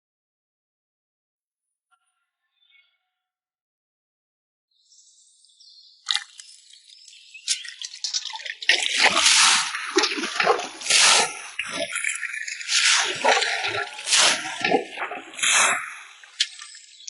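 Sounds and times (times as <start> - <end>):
water splashing and dripping: 6.1 - 17.0.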